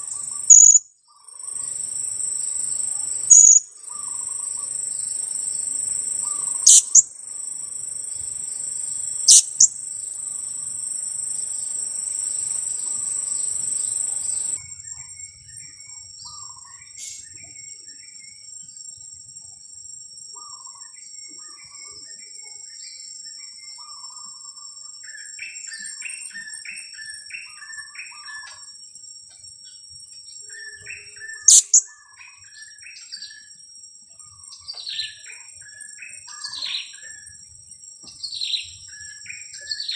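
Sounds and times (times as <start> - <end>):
loud sharp high chirps: 0.0 - 0.9, 3.3 - 4.7, 6.2 - 7.1, 9.2 - 9.7, 30.8 - 31.9
insect drone: 0.0 - 39.9
parrots chirping: 0.5 - 0.8, 3.3 - 3.6, 6.2 - 7.0, 9.2 - 9.7, 31.4 - 31.9.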